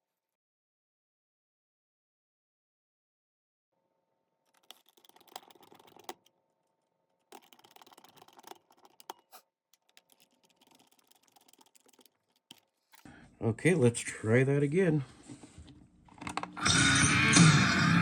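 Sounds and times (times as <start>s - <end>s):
cassette player clicking and scratching: 4.5s - 6.3s, 7.3s - 13.1s.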